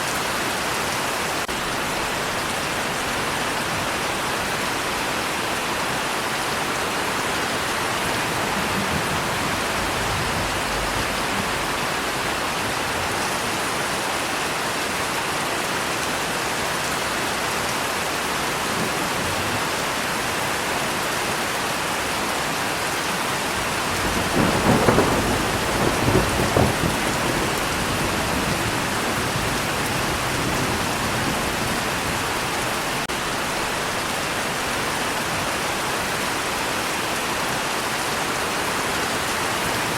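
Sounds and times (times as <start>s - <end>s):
steady rain: 0.0s - 39.9s
thunder rumbling: 7.3s - 13.4s, 23.6s - 32.9s.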